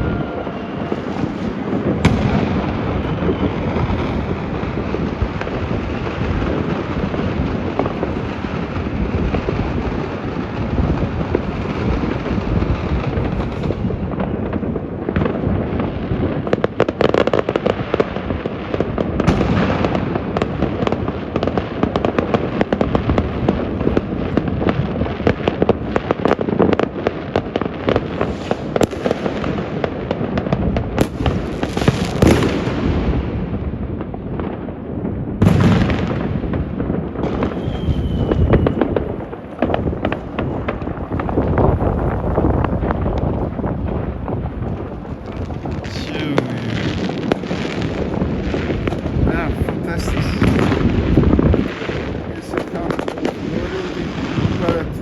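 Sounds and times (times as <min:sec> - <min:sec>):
fireworks bangs and crackles: 0:00.0 - 0:55.0
sharp firework cracks: 0:00.0 - 0:55.0.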